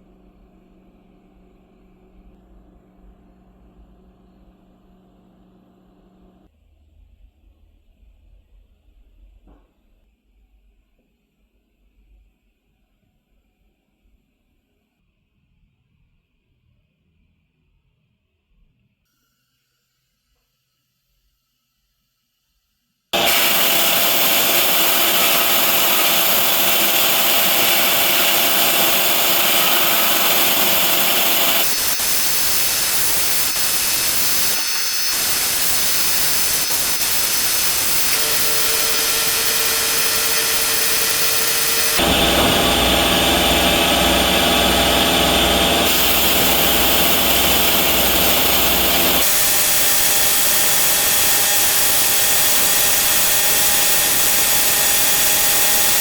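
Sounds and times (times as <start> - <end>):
power tool grinding: 23.2 - 56.0.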